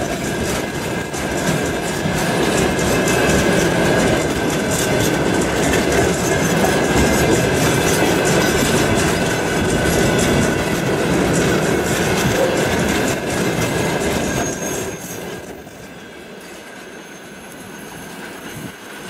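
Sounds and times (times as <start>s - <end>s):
freight train rolling past: 0.0s - 19.0s
wheels clattering over rail joints: 0.0s - 19.0s
thin wheel squeal: 14.1s - 15.4s, 16.8s - 19.0s.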